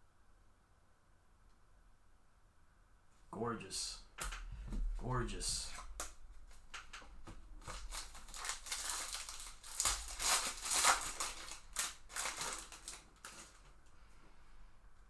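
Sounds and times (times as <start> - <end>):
foil wrapper crinkling: 6.5 - 13.8.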